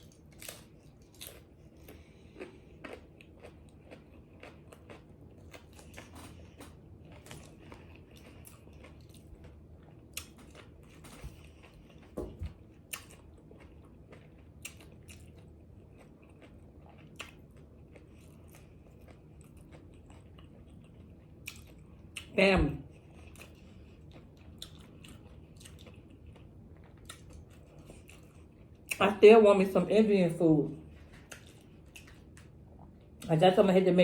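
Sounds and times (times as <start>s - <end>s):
person chewing crunchy food: 0.0s - 29.0s, 30.8s - 33.3s.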